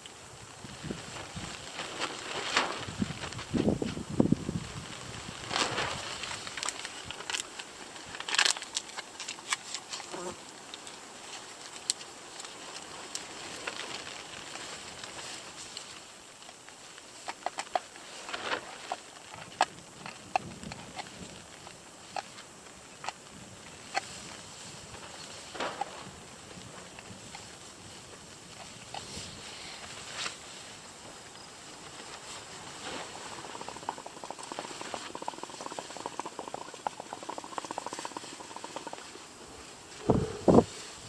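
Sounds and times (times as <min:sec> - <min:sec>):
rain hissing: 0:39.0 - 0:41.0.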